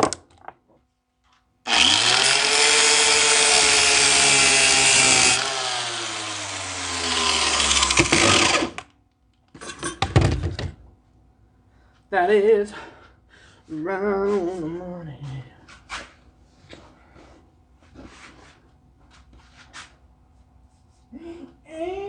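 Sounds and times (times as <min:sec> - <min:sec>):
power tool motor whine: 0:01.7 - 0:08.9.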